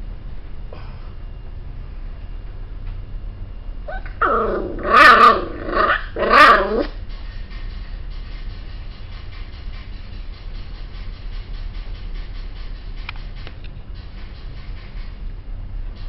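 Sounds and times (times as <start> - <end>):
steady low rumble: 0.0 - 16.0
dog growling and barking: 3.9 - 7.0.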